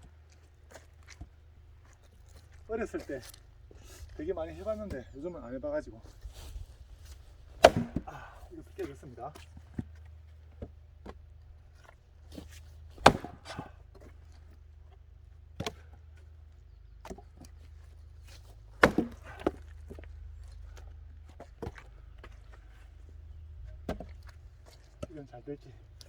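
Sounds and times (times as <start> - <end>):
axe splitting firewood: 7.1 - 25.3
light knocks of wood: 23.6 - 25.2.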